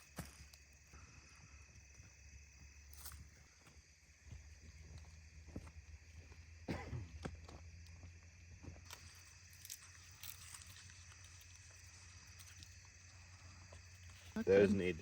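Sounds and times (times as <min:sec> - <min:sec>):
onions crunching and rustling: 0:08.9 - 0:15.0.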